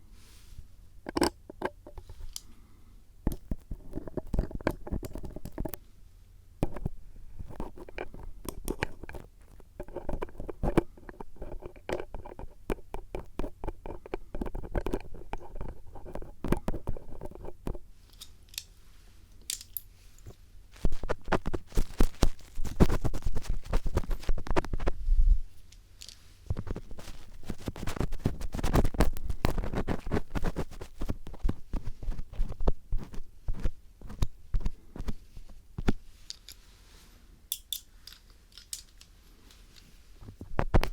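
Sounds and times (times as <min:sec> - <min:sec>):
screwdriver scraping a microphone: 0:03.3 - 0:05.8, 0:06.6 - 0:17.8, 0:20.8 - 0:25.0, 0:26.5 - 0:36.0.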